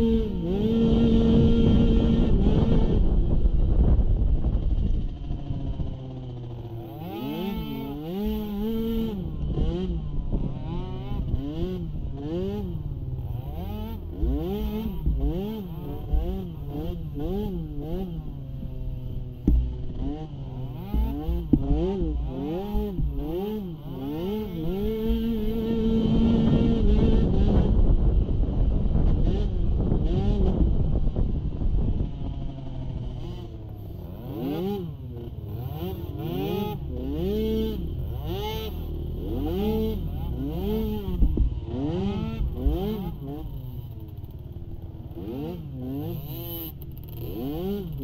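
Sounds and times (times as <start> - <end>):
small atv engine revving: 0.0 - 48.0
knocks from riding: 19.4 - 20.0.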